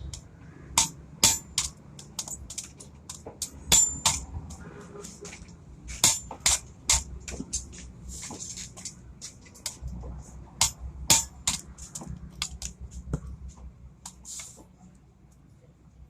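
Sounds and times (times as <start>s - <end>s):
metal parts clinking: 0.8s - 4.6s.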